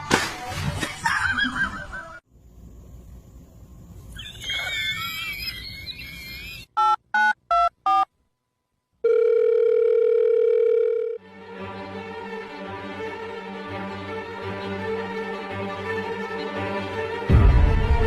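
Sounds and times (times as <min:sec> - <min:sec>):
steady telephone tone: 0:09.0 - 0:11.2
string music: 0:11.2 - 0:18.0.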